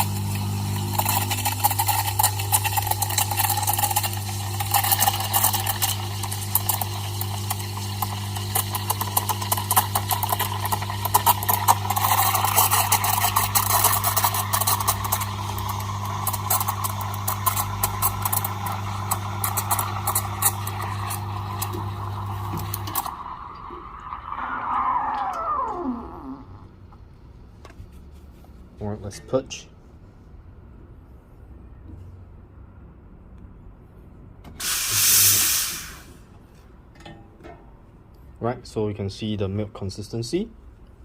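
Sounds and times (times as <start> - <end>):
steam wand hissing in milk: 34.6 - 36.2.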